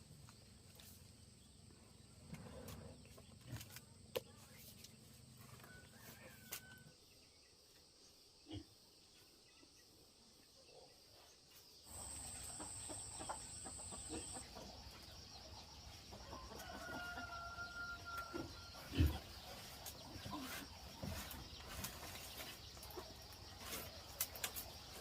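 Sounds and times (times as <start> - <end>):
chickens clucking: 11.9 - 17.4
drawn-out chicken call: 16.2 - 19.2.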